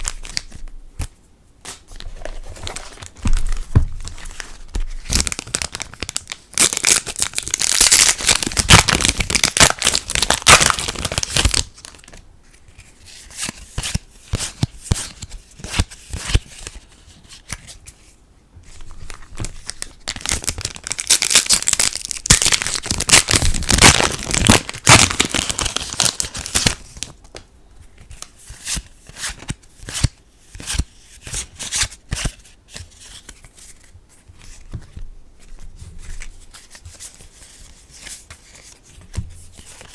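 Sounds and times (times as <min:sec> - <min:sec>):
foil packs tearing and crinkling: 0:05.1 - 0:12.0, 0:20.1 - 0:27.0.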